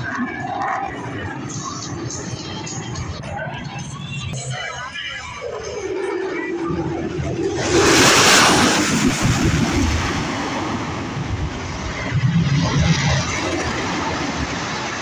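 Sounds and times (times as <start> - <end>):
aircraft flying past: 0.0 - 15.0.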